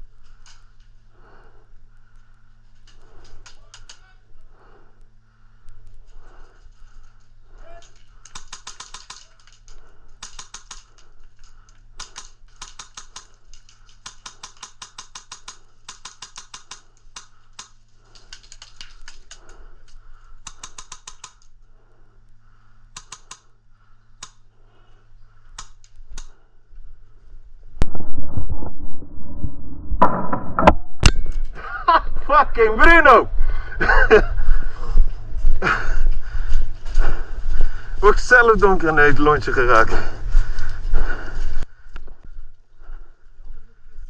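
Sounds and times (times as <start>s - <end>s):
airsoft guns firing in bursts: 8.2s - 11.0s, 12.0s - 19.4s, 20.4s - 21.4s
sudden loud noise: 27.8s - 31.4s.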